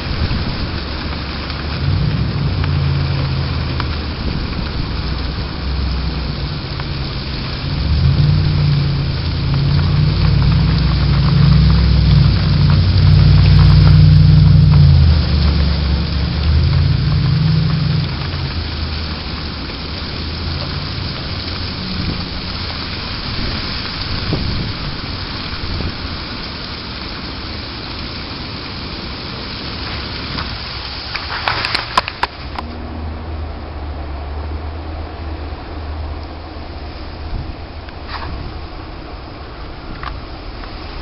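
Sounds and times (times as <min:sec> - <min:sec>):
sharp crackles: 0:00.0 - 0:32.9
storm hiss of wind and snow: 0:00.0 - 0:41.0
wind buffeting microphone: 0:00.0 - 0:41.0.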